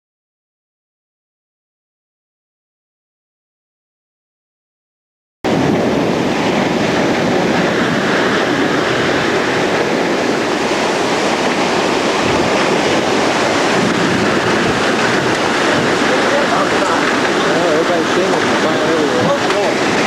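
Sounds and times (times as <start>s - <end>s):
tornado wind roaring: 5.5s - 20.0s.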